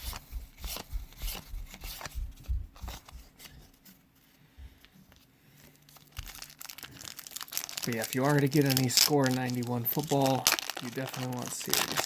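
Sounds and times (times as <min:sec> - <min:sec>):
trading cards flipped by hand: 0:00.0 - 0:02.2.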